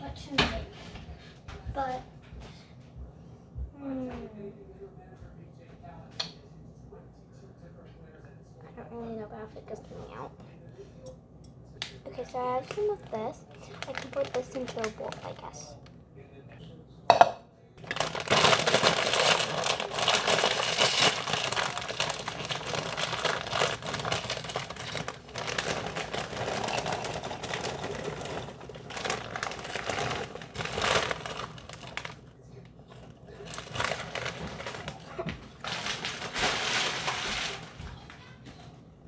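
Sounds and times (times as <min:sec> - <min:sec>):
plastic packaging crinkling: 0:12.1 - 0:15.8, 0:17.8 - 0:32.3, 0:32.9 - 0:37.8.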